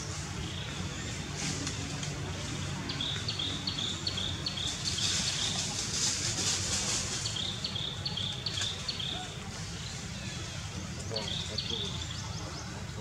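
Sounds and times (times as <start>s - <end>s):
bird chirping: 7.2s - 13.0s.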